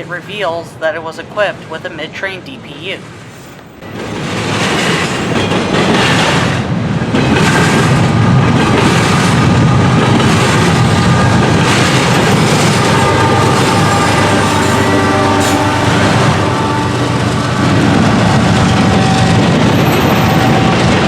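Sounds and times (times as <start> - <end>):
freight train rumbling over rails: 0.0 - 21.0
steady tones: 8.0 - 21.0.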